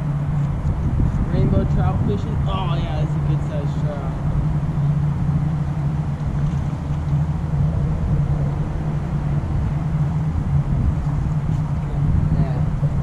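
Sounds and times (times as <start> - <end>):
low motor hum: 0.0 - 13.0
noisy rumble: 0.0 - 13.0.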